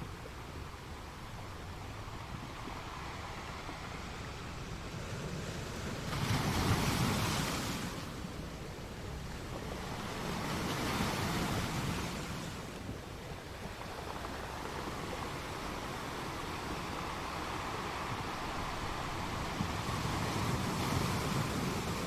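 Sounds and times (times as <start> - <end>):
steady rushing noise: 12.0 - 22.0.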